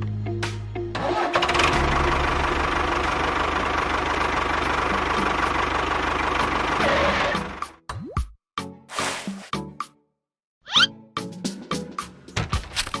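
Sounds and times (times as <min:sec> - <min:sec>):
engine running with low pulsing: 0:00.0 - 0:07.8.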